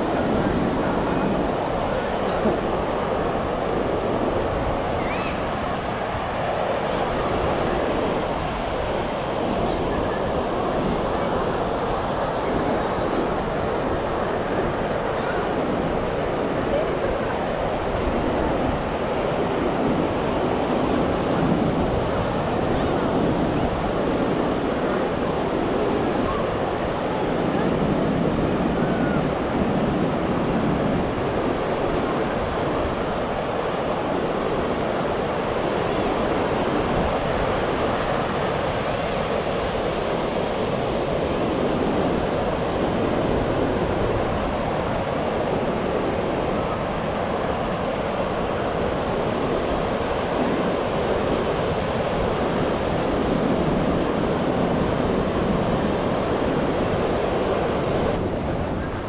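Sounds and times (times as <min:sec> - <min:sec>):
ocean waves washing onto beach: 0:00.0 - 0:59.0.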